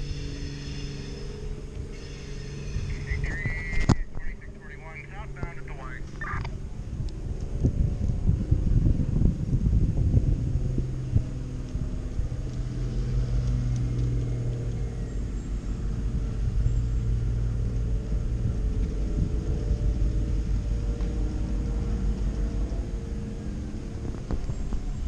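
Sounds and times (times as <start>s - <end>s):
locomotive engine humming: 0.0s - 6.9s.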